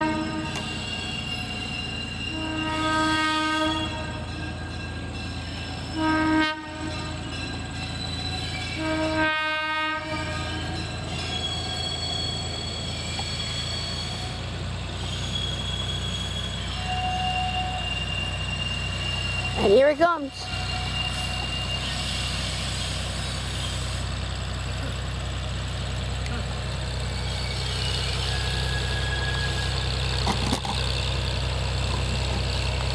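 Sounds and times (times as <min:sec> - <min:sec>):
locomotive horn blasts: 0:00.0 - 0:04.5, 0:05.8 - 0:07.4, 0:08.6 - 0:11.0, 0:16.7 - 0:18.4.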